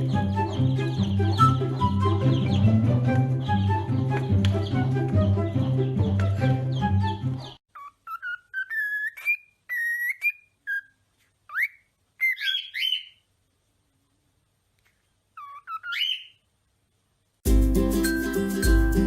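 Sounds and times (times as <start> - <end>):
background music: 0.0 - 7.6, 17.5 - 19.0.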